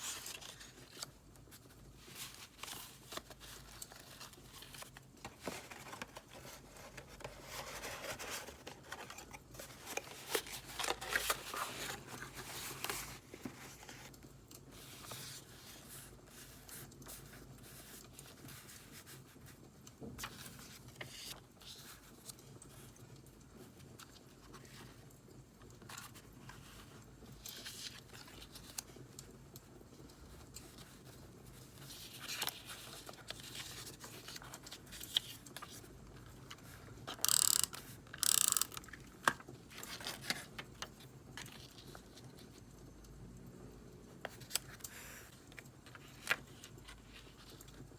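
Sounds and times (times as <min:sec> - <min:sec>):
paper rustling: 0:00.0 - 0:14.2, 0:25.7 - 0:29.0, 0:30.2 - 0:37.2, 0:38.8 - 0:42.5, 0:44.2 - 0:47.8.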